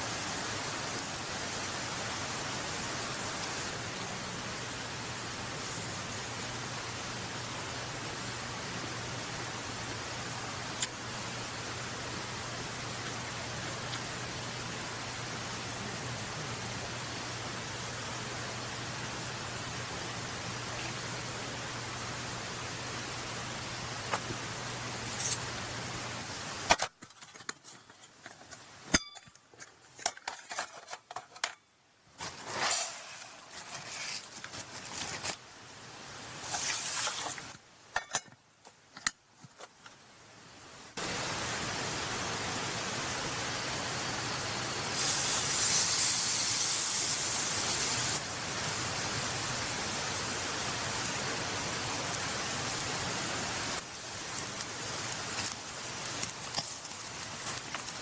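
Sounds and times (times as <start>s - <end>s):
beef sizzling over charcoal: 0.0s - 7.5s, 17.2s - 27.2s, 32.2s - 38.2s, 44.9s - 58.0s
rice clinking in cooking pot: 53.9s - 58.0s.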